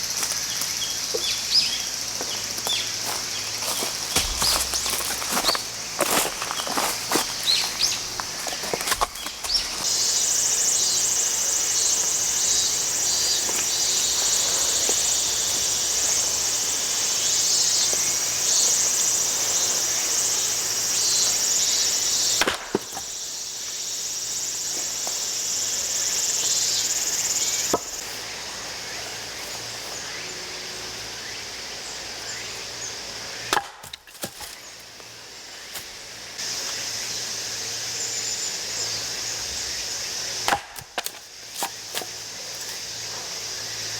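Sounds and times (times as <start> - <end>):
high insect chorus: 0.0 - 43.9
axe splitting firewood: 3.6 - 9.9, 22.4 - 23.1, 33.4 - 34.6, 40.4 - 42.2.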